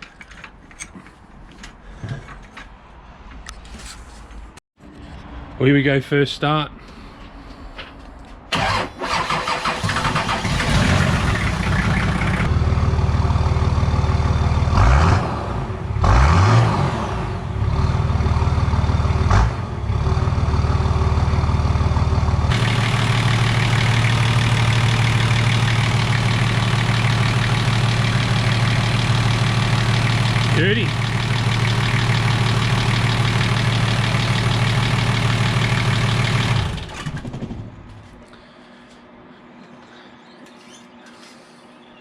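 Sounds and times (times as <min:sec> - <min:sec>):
diesel engine revving: 0:08.5 - 0:37.7
diesel engine cranking and starting: 0:08.5 - 0:38.2
diesel engine idling: 0:08.6 - 0:14.9, 0:17.5 - 0:37.3.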